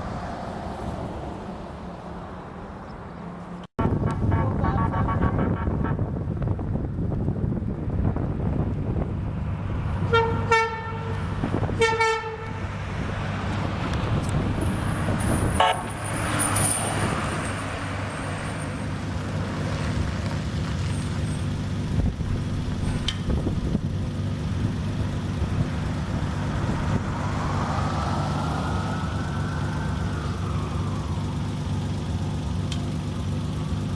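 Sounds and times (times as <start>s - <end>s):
air horn blasts: 3.8s - 6.3s, 10.1s - 12.6s, 15.5s - 16.0s
diesel engine running: 3.8s - 33.9s
siren sweeping: 26.8s - 32.5s.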